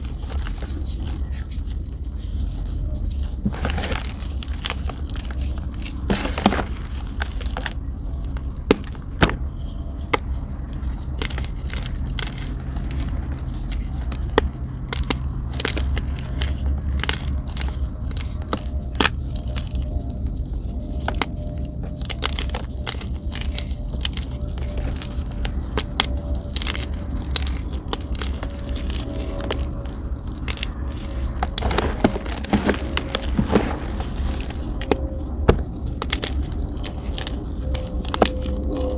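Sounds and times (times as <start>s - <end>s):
chalk crunching and cracking: 0.0s - 38.9s.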